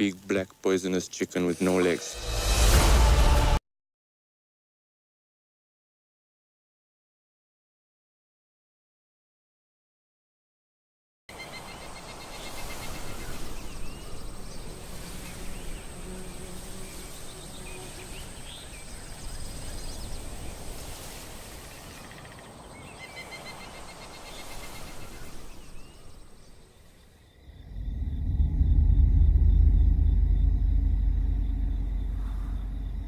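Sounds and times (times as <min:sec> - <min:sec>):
high insect drone: 0:11.4 - 0:22.5, 0:23.5 - 0:33.0
background hiss: 0:11.4 - 0:27.9
pulsed trills: 0:27.7 - 0:33.0.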